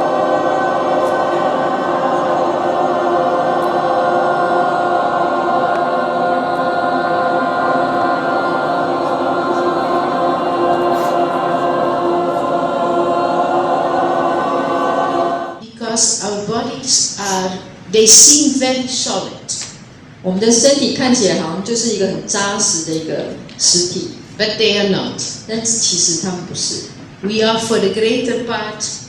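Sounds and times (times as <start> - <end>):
group overtone singing drone: 0.0 - 15.6.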